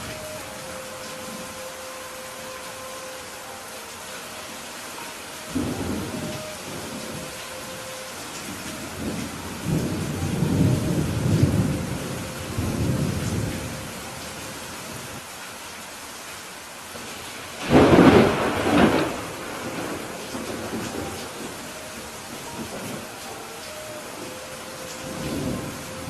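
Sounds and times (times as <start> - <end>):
steady rain: 0.0 - 26.0
thunder rolling: 5.5 - 7.8, 17.6 - 23.2.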